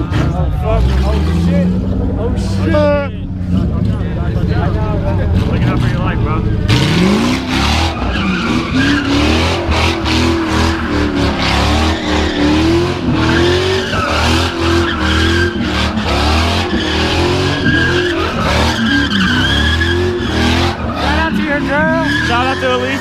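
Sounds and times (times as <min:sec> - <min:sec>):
car engine revving: 0:00.0 - 0:23.0
tyres squealing: 0:05.3 - 0:23.0.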